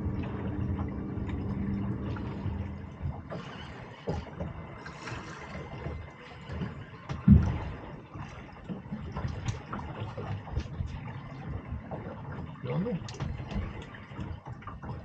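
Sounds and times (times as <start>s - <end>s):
low steady hum: 0.0s - 15.0s
water lapping against hull: 0.0s - 15.0s.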